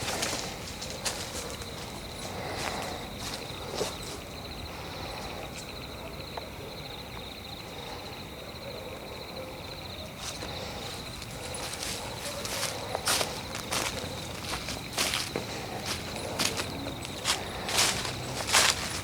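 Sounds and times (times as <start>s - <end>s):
footsteps on dry leaves: 0.0s - 4.1s, 10.2s - 19.0s
insects trilling: 0.0s - 19.0s.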